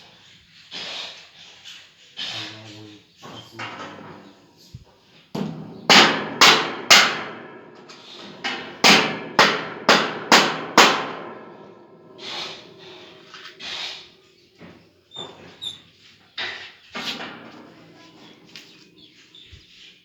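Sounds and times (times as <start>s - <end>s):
hammer strikes ringing: 5.4s - 13.5s.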